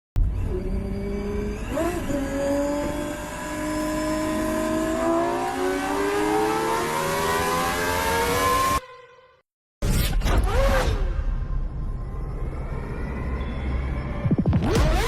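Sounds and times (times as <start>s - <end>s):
car engine accelerating: 0.3s - 8.8s.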